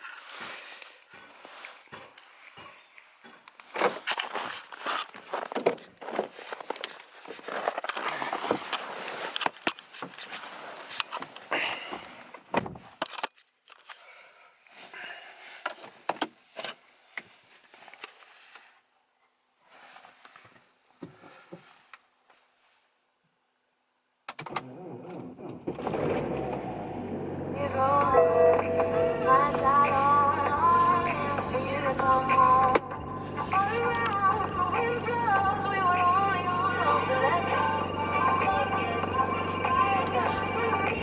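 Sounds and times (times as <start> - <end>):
rustling: 0.0 - 14.1
footsteps crunching: 1.1 - 9.6, 28.7 - 36.5.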